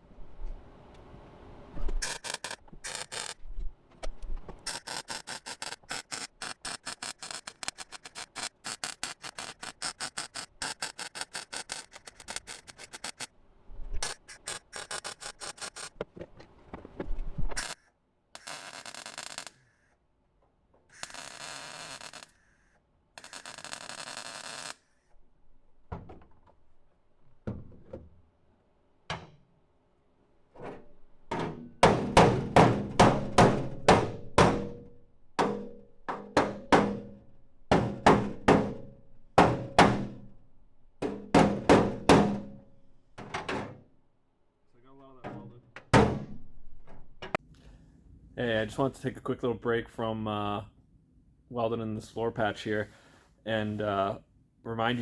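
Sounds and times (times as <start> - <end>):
welder crackling: 2.0 - 3.4, 4.5 - 13.3, 14.0 - 16.0, 17.5 - 19.8, 20.9 - 25.0.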